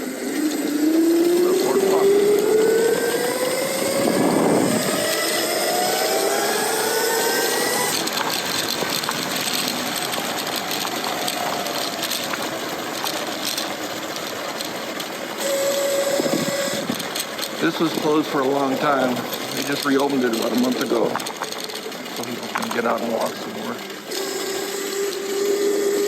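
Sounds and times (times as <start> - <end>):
rushing wind: 0.0 - 21.7
electric bike motor whining: 0.0 - 26.0
road noise: 0.0 - 26.0.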